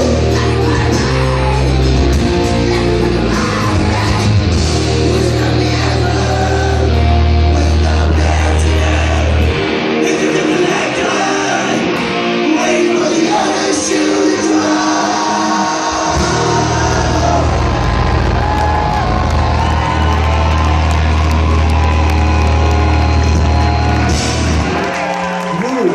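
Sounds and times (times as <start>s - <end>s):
heavy low bass: 0.0s - 10.8s, 16.0s - 24.8s
punk band playing live: 0.0s - 25.9s.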